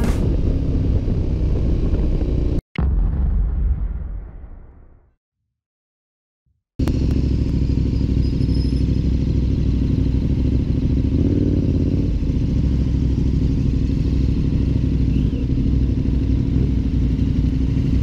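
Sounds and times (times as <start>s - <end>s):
motorcycle engine running: 0.0s - 2.6s, 6.8s - 18.0s.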